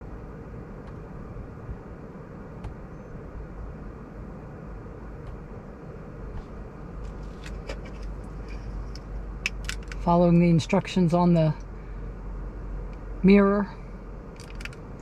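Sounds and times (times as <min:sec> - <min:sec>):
car interior rumble and hiss: 0:00.0 - 0:15.0.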